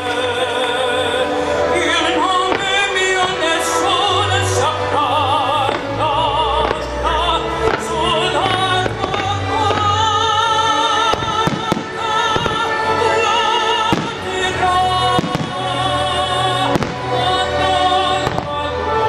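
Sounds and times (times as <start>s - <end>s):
operatic voice singing: 0.0s - 19.0s
orchestral music: 0.0s - 19.0s
fireworks bursting with sharp bangs: 2.2s - 4.8s, 5.5s - 18.9s.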